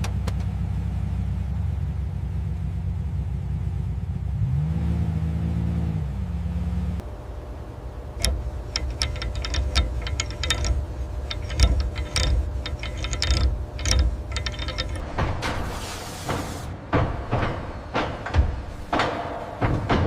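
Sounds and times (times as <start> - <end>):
low machine rumble: 0.0 - 4.6, 6.1 - 20.0
sharp mechanical clicks: 8.2 - 15.1.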